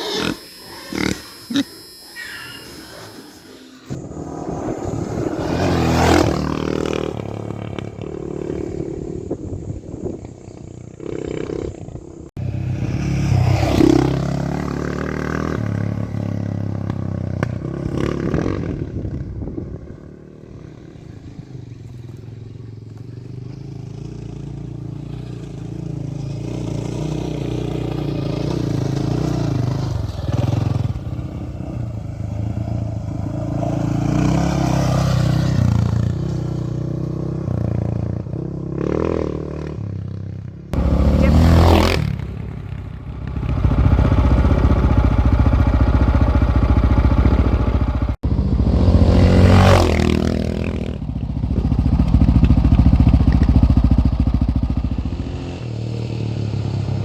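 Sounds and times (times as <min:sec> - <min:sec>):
dirt bike engine: 0:00.0 - 0:57.0.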